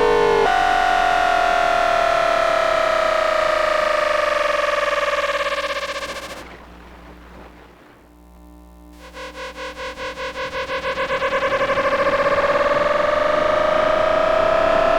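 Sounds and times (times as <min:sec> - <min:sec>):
pulsing electrical tone: 0:00.0 - 0:06.6, 0:08.2 - 0:14.9
train inverter electrical whine: 0:00.0 - 0:14.9.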